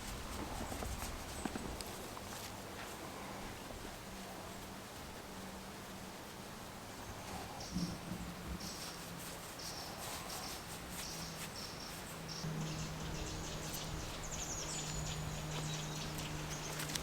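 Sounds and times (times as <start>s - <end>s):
bird chirps: 9.6s - 17.0s
low steady hum: 11.6s - 17.0s.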